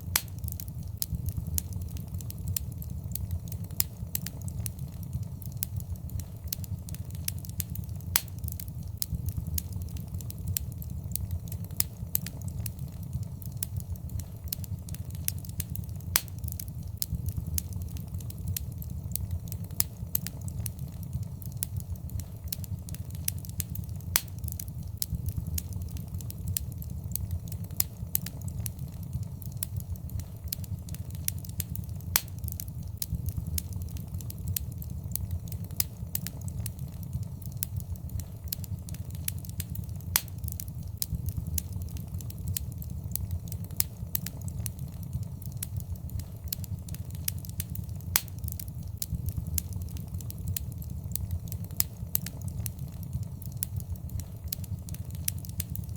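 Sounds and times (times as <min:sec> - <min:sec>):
fire crackling and popping: 0:00.0 - 0:55.9
low rumble of flames: 0:00.0 - 0:55.9.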